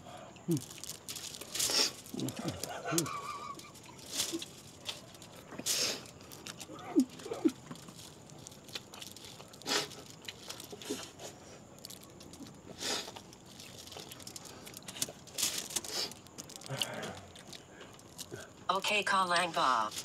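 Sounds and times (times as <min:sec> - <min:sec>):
crunching and biting: 0:00.0 - 0:18.7.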